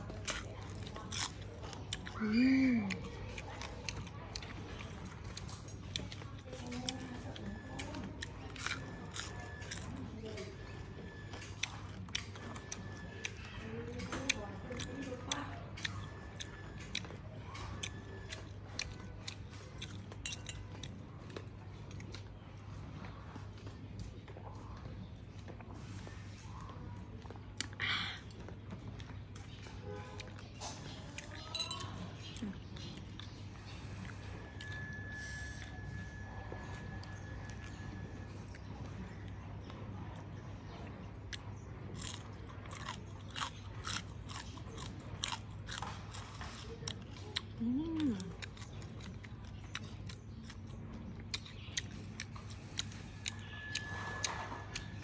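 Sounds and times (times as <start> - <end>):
wet chewing mouth sounds: 0.0 - 55.0.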